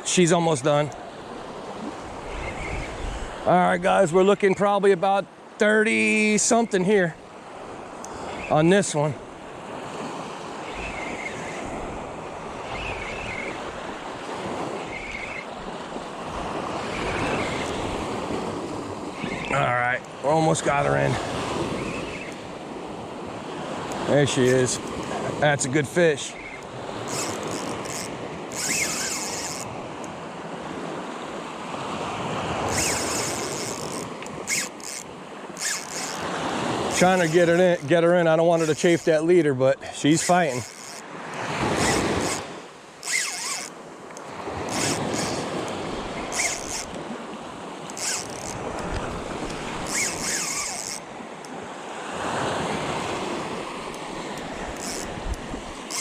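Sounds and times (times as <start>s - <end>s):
surf washing: 0.0s - 56.0s
wind: 0.0s - 56.0s
short high squeak: 14.8s - 15.5s, 26.3s - 29.7s, 32.7s - 35.0s, 35.6s - 36.2s, 41.7s - 43.7s, 44.6s - 45.5s, 46.1s - 46.9s, 47.9s - 48.6s, 49.8s - 51.0s, 54.8s - 55.2s
high whirring: 26.4s - 29.7s, 32.7s - 36.3s, 36.9s - 37.9s, 40.2s - 41.0s, 41.7s - 43.8s, 44.6s - 47.0s, 47.9s - 51.0s, 54.4s - 56.0s.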